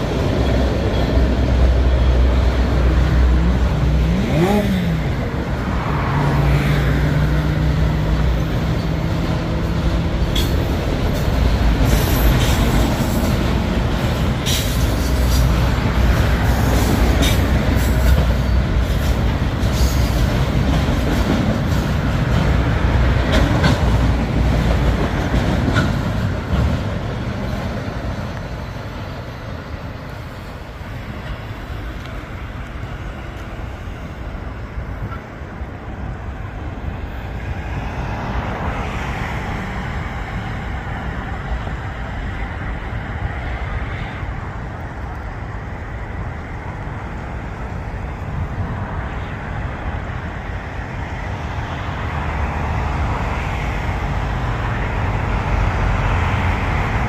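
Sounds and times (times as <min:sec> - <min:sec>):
freight train wheels rumbling: 0:00.0 - 0:57.0
wheels clicking over rail joints: 0:08.1 - 0:35.6.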